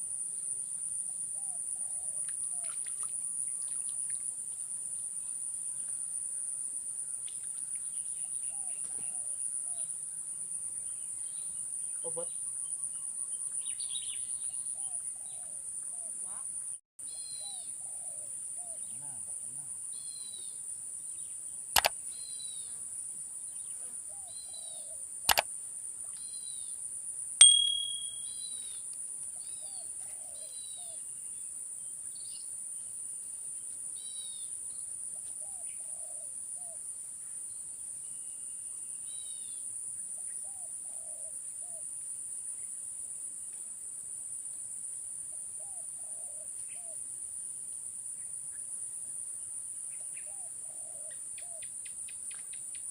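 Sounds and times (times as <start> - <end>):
short ringing tone: 27.4 - 28.4.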